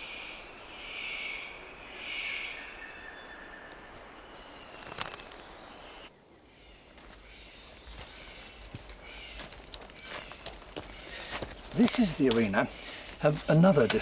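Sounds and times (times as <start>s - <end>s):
insects hissing: 4.3s - 14.0s.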